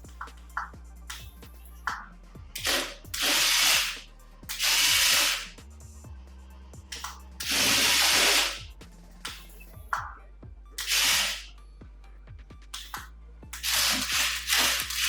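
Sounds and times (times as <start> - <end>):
background music: 0.0 - 15.0
toy motors and gears whirring: 2.6 - 5.6, 6.9 - 9.8, 10.8 - 11.5, 12.8 - 15.0.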